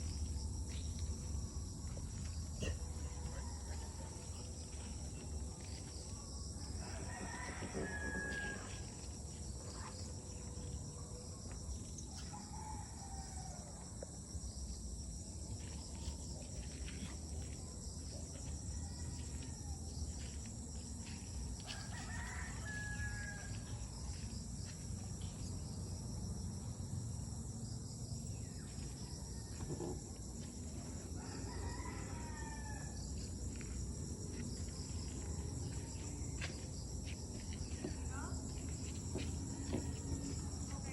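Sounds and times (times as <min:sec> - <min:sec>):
rooster crowing: 0:06.7 - 0:08.9, 0:21.6 - 0:23.8, 0:31.1 - 0:33.2.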